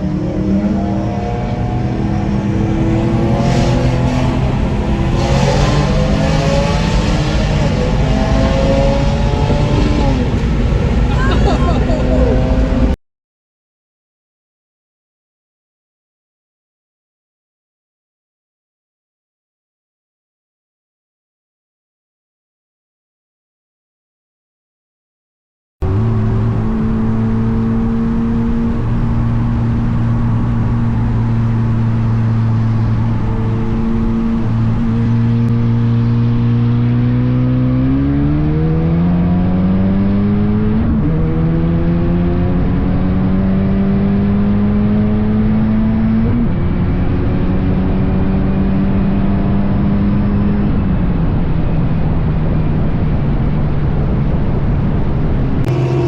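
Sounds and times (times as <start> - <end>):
car engine accelerating: 0.0 - 13.0, 25.8 - 56.0.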